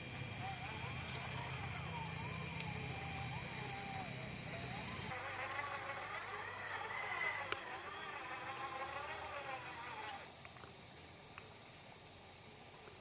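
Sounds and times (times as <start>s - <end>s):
electric motor whining: 0.0s - 10.4s.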